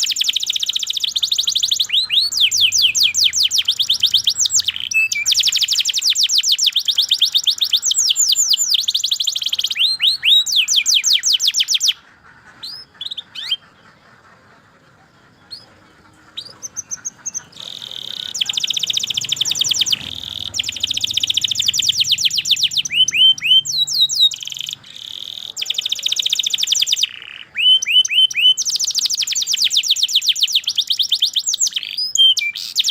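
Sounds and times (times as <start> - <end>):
bird chirps: 0.0 - 32.9
canary singing trills: 0.0 - 32.9.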